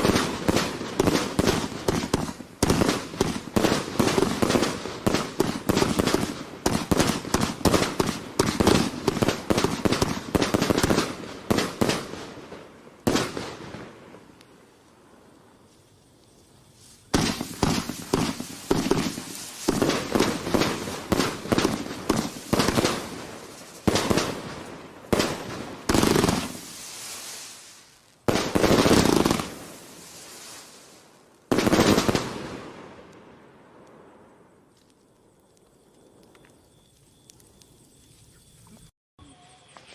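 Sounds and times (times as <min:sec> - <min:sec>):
firework volley of sharp shots: 0:00.0 - 0:14.2, 0:17.1 - 0:27.6, 0:28.2 - 0:33.1
firework bursts: 0:00.0 - 0:15.6, 0:16.4 - 0:34.2.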